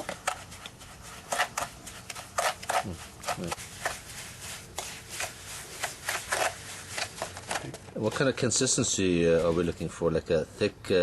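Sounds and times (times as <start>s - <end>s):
tool scraping thick paste: 0.0s - 8.5s.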